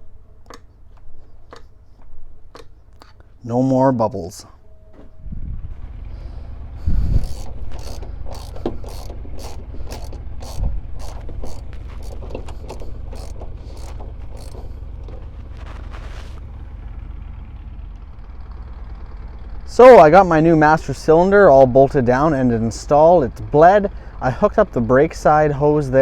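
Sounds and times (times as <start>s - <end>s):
steady low hum: 0.0s - 26.0s
hand ratchet clicking: 6.9s - 16.4s.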